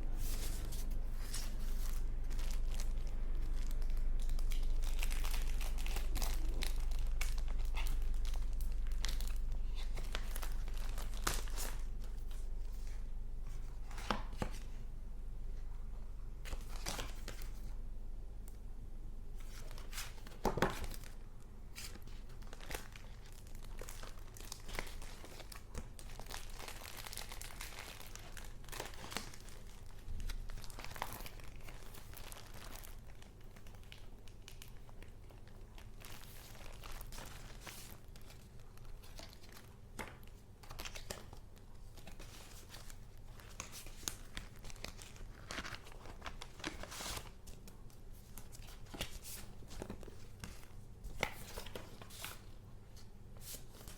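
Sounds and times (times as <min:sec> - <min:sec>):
steady low hum: 0:00.0 - 0:20.4
paper crinkling and rustling: 0:00.2 - 0:14.8, 0:19.4 - 0:53.9.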